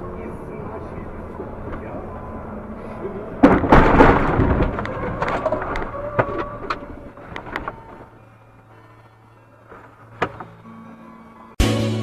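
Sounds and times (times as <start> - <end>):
road and engine noise: 0.0 - 11.6
loud car collision: 3.3 - 7.0
clattering and rattling: 3.3 - 8.1.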